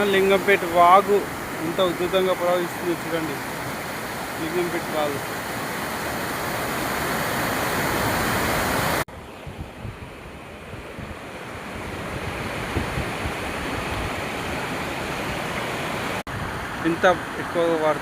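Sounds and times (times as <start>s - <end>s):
stream water rushing: 0.0s - 18.0s
wind buffeting microphone: 7.4s - 15.6s.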